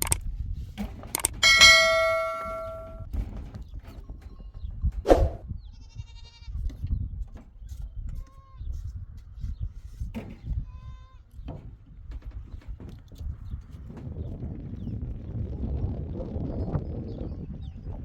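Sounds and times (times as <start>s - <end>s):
handling noise: 0.0s - 4.4s
metallic clang ringing: 1.4s - 3.0s
wind rumble: 4.6s - 6.0s, 13.0s - 18.0s.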